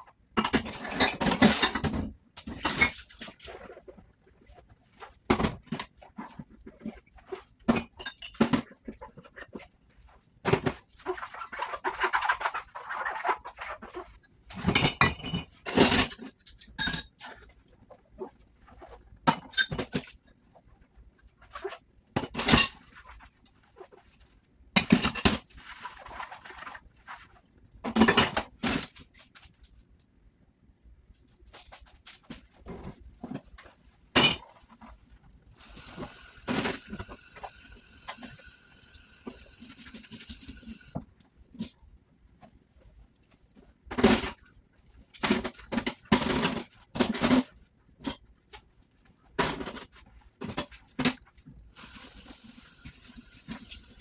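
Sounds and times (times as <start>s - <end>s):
dishes clinking while washed: 0.3s - 3.5s, 7.6s - 9.0s, 13.8s - 17.5s, 19.3s - 20.2s, 22.2s - 22.9s, 27.9s - 28.9s, 34.1s - 34.9s, 35.6s - 41.8s, 51.8s - 54.0s
rubbing noise: 8.9s - 14.2s.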